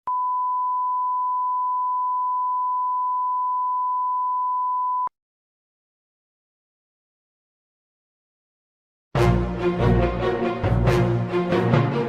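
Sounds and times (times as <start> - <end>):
steady censor beep: 0.1 - 5.1.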